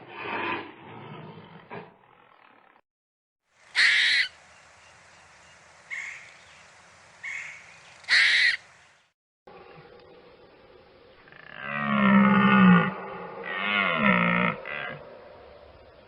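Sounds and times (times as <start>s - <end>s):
bird calling: 3.7s - 9.8s.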